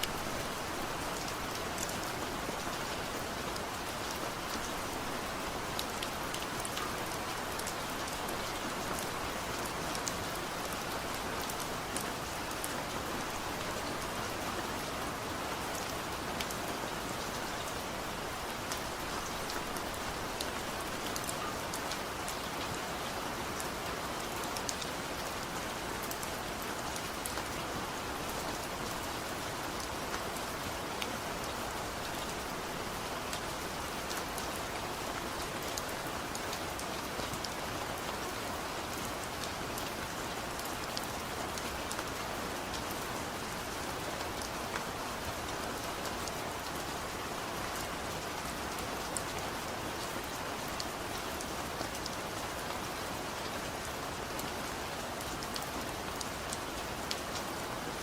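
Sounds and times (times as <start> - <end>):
heavy rain pattering: 0.0 - 58.0.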